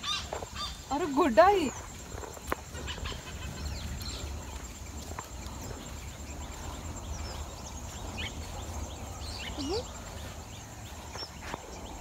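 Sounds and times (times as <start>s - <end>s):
steady low rumble: 1.7s - 12.0s
faint bird chirps: 2.8s - 12.0s.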